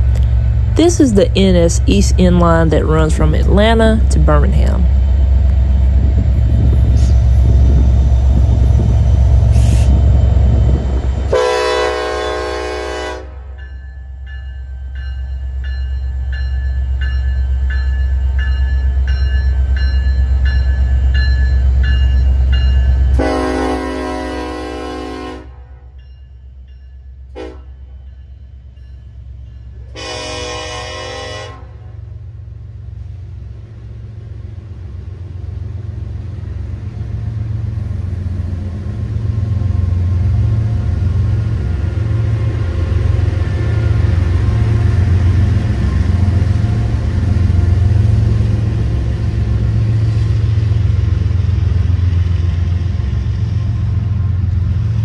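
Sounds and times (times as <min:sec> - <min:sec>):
freight train rumbling by: 0:00.0 - 0:55.0
locomotive air horn: 0:11.3 - 0:13.4, 0:23.2 - 0:25.8, 0:27.3 - 0:27.7, 0:29.9 - 0:31.9.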